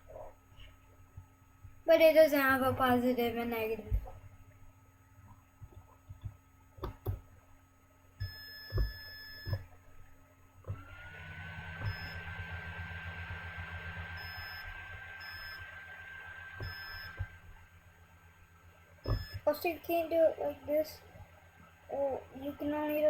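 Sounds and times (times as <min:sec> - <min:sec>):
electronic buzzer beeping: 0:08.2 - 0:09.7, 0:11.7 - 0:17.4, 0:19.0 - 0:19.5.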